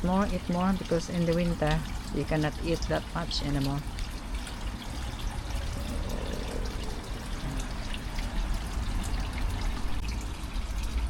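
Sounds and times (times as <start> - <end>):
water pouring into a pond: 0.0 - 11.0.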